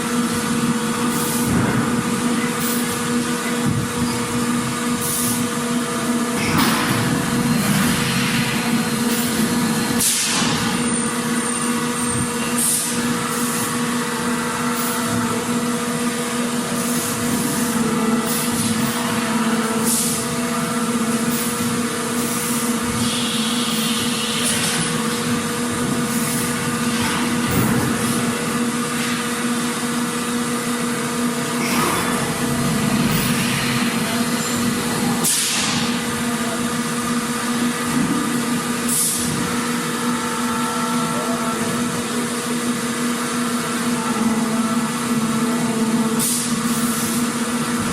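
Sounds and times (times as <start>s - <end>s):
machinery humming: 0.0s - 47.9s.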